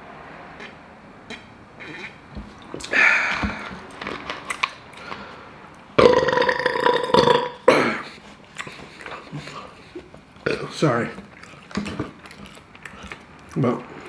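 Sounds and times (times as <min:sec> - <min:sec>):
person burping: 0:06.0 - 0:08.1.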